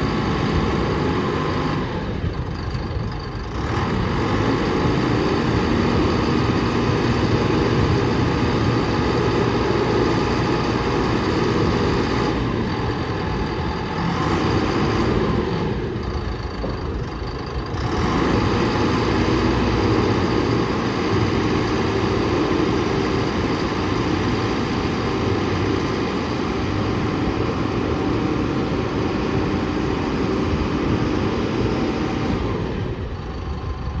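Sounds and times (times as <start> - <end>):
mixer truck diesel engine running: 0.0 - 34.0.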